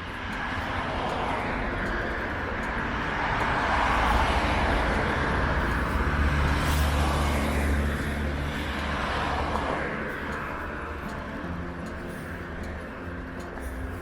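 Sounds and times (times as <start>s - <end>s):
car passing: 0.1s - 14.0s.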